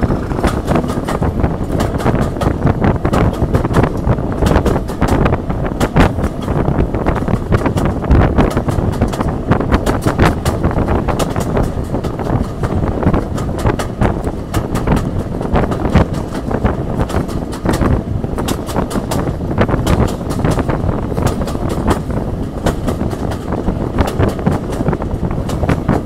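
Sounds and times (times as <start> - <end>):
train running at speed: 0.0 - 26.0
wind buffeting microphone: 0.0 - 26.0.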